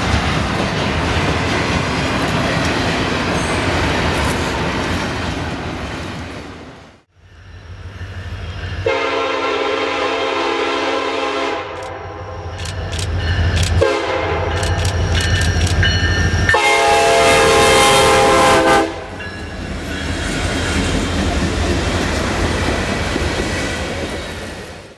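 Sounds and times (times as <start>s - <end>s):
wheels clicking over rail joints: 0.0s - 6.2s, 14.6s - 16.1s
locomotive and freight cars rumbling: 0.0s - 24.9s
locomotive air horn blasts: 8.8s - 12.3s, 13.8s - 14.6s, 16.5s - 19.2s.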